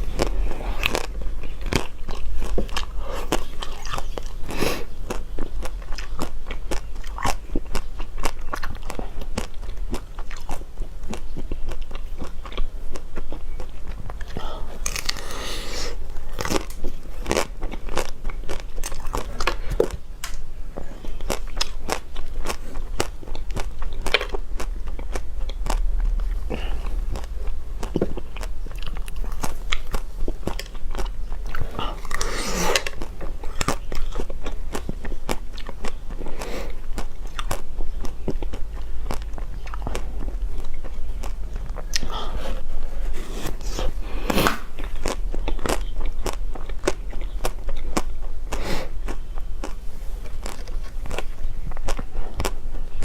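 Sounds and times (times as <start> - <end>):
crunchy biting and chewing: 0.0 - 53.0.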